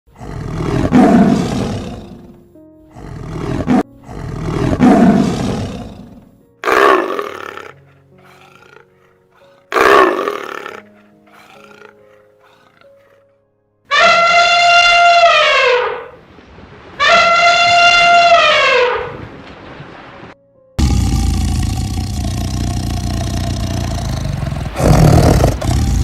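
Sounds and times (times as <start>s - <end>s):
deep animal roars: 0.1s - 13.2s, 20.8s - 26.0s
background music: 0.1s - 16.2s, 20.4s - 26.0s
quieter animal calls: 6.6s - 13.2s.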